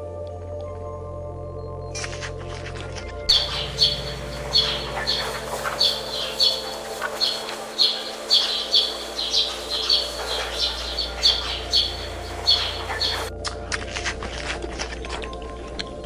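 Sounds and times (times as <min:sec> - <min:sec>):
bird chirping: 0:03.3 - 0:13.3
steady low hum: 0:03.3 - 0:13.3.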